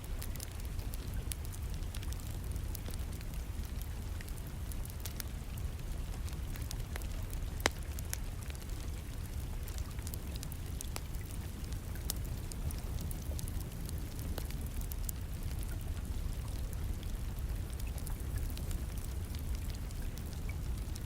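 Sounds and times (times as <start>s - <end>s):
rain: 0.0s - 21.0s
wood fire crackling: 0.0s - 21.0s
sharp pops from fire: 6.6s - 8.2s.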